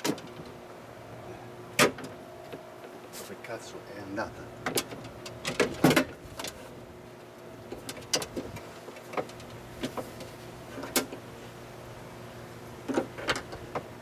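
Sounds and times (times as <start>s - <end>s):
steady low hum: 0.1s - 14.0s
clicks and clunks of parts: 4.6s - 6.6s, 7.7s - 11.2s, 12.9s - 13.9s.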